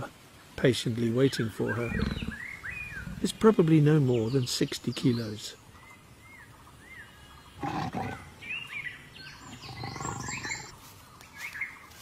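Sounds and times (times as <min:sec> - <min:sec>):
birds chirping: 0:00.8 - 0:12.0
leopard rasping grunting calls: 0:01.7 - 0:03.6, 0:07.5 - 0:08.4, 0:09.4 - 0:10.7.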